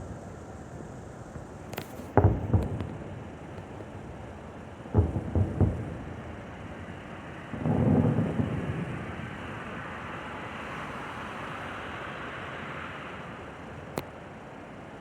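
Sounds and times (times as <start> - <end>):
steady hiss: 0.0 - 15.0
firework shell boom: 1.7 - 9.5.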